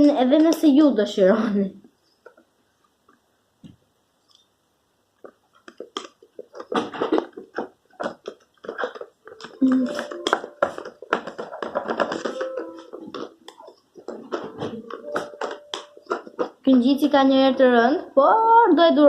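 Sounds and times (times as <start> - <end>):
held stepwise melody: 9.2 - 17.1.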